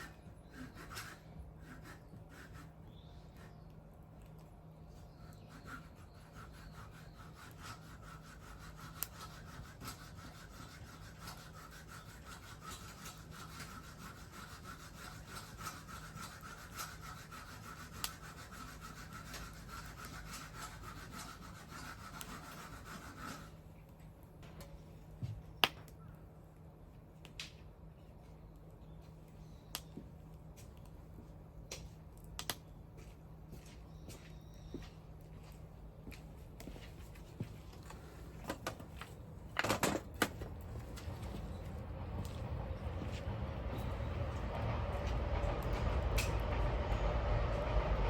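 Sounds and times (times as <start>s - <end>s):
wood fire crackling and popping: 31.8s - 32.6s.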